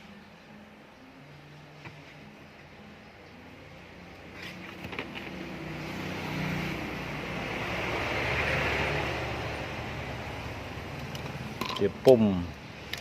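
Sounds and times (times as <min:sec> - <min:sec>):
vehicle passing by: 0:03.4 - 0:11.6.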